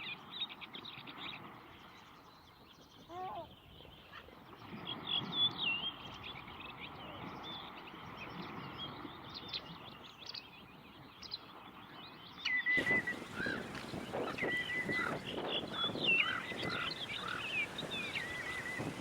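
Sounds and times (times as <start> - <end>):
wild birds chirping: 12.8 - 19.0.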